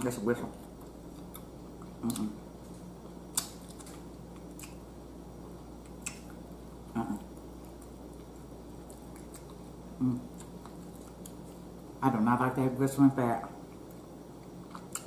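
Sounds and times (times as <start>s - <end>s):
steady low hum: 0.0s - 15.0s
person chewing steak: 0.6s - 11.8s, 13.6s - 15.0s.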